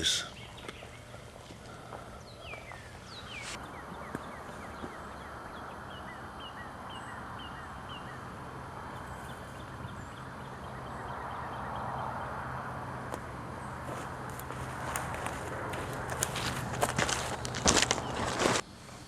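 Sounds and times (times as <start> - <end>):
steady rushing hiss: 2.7 - 3.7.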